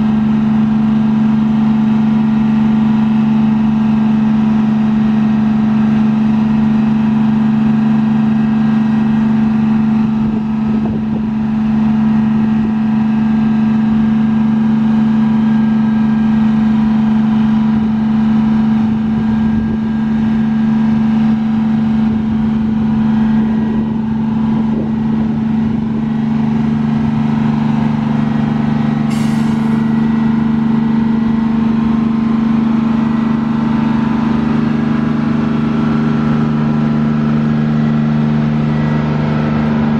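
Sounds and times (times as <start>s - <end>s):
diesel bus engine running: 0.0s - 39.9s
air brake hiss: 29.1s - 29.9s.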